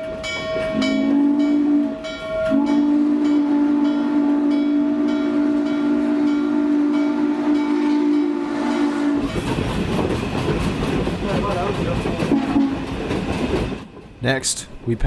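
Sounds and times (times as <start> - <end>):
steam locomotive chime whistle: 0.0 - 9.3, 12.3 - 12.9
train rumbling on rails: 0.0 - 15.0.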